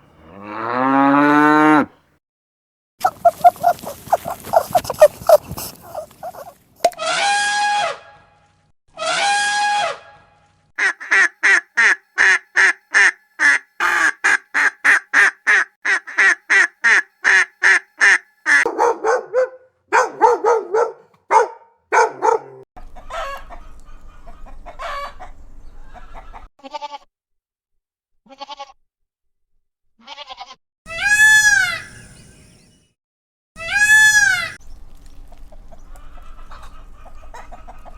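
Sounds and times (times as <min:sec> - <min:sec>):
farm animals calling: 0:03.0 - 0:07.9, 0:22.0 - 0:26.5, 0:30.0 - 0:32.2, 0:33.6 - 0:34.6.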